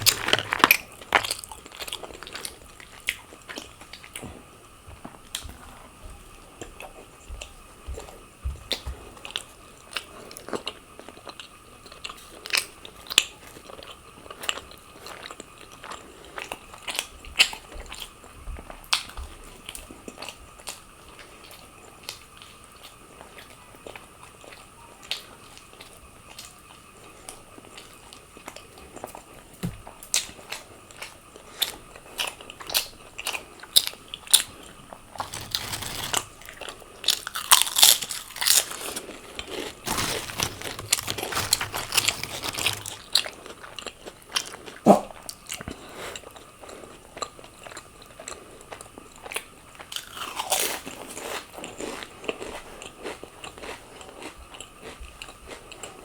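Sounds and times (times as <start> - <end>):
person chewing crunchy food: 0.0 - 4.2, 35.1 - 44.8, 45.5 - 56.0.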